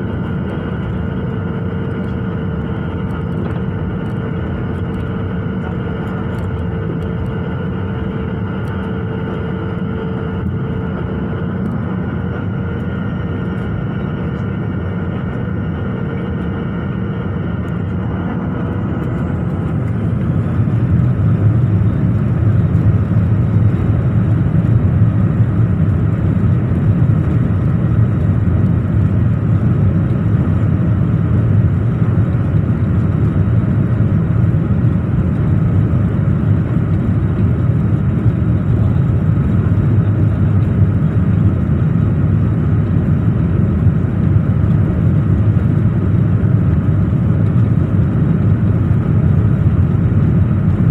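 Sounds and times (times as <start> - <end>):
jet engines spooling up: 8.6 - 25.2.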